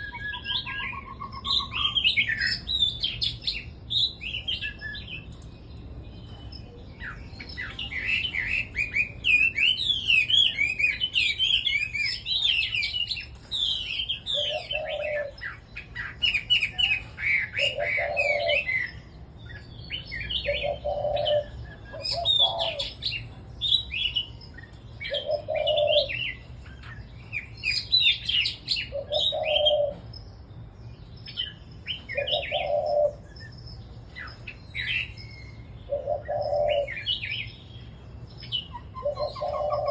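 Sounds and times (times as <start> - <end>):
bulbuls warbling: 7.6 - 23.2, 25.0 - 27.1, 27.7 - 30.1, 32.0 - 33.5, 35.9 - 37.5, 38.6 - 39.9
low bird call: 38.5 - 39.9.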